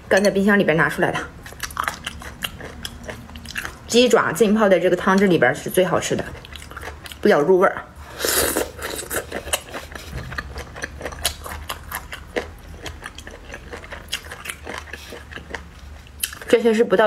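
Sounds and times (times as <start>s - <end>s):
low steady hum: 0.0s - 17.0s
person chewing: 1.2s - 3.9s, 6.2s - 7.2s, 8.0s - 16.5s.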